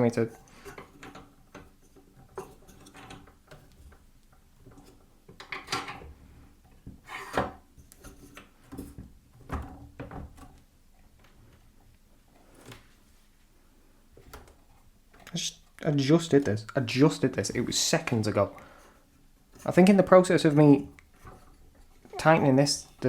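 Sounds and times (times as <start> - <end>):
drill fittings clunking and scraping: 0.4 - 10.6.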